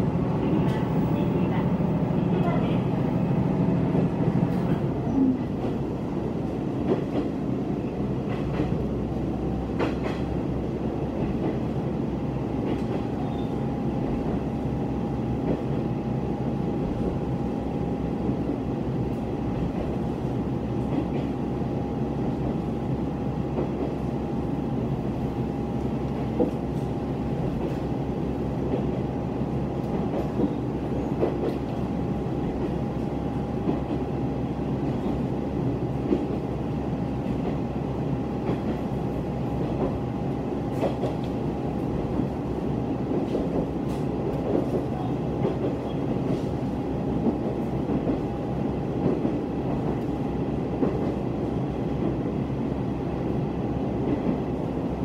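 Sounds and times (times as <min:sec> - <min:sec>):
railcar engine and wheels rumbling: 0:00.0 - 0:55.0
track clacks: 0:06.8 - 0:07.4, 0:08.2 - 0:08.9, 0:09.7 - 0:10.4.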